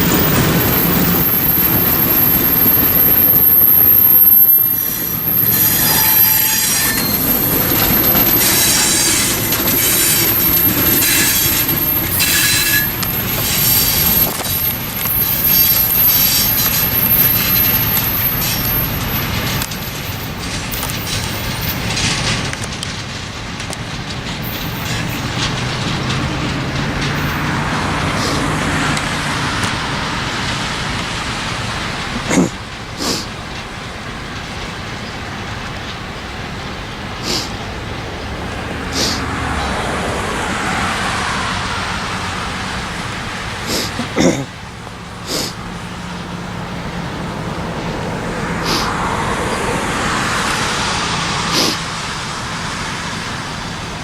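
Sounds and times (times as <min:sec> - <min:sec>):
low engine hum: 0:00.0 - 0:12.2
train wheels squealing: 0:00.0 - 0:22.5, 0:24.4 - 0:30.0, 0:37.2 - 0:43.1, 0:45.3 - 0:51.9
train rolling by: 0:00.0 - 0:54.0.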